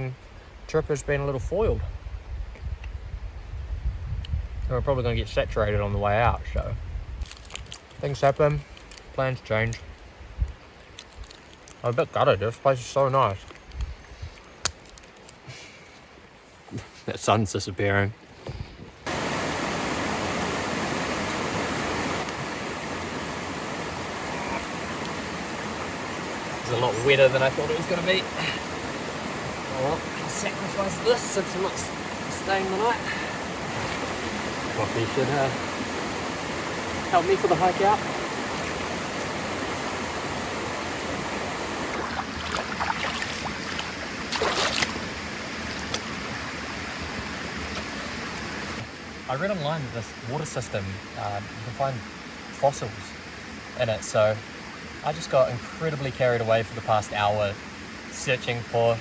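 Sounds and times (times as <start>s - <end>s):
river flowing over rocks: 19.1s - 49.2s.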